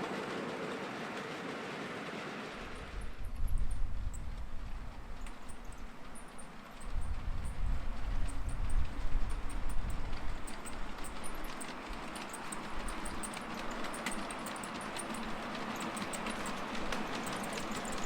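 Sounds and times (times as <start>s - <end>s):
miniature train running on track: 0.0s - 18.0s
train wheels clicking over rail joints: 0.0s - 18.0s
wind buffeting the microphone: 2.7s - 5.9s, 6.8s - 11.6s.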